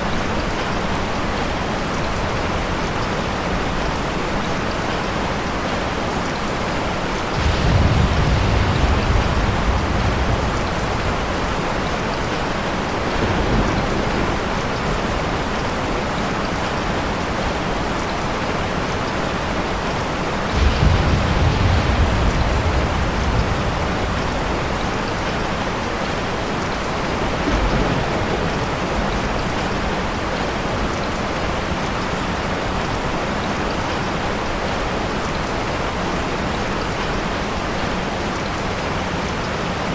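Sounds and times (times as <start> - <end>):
steady rain: 0.0 - 39.9
thunder rumbling: 6.5 - 32.9.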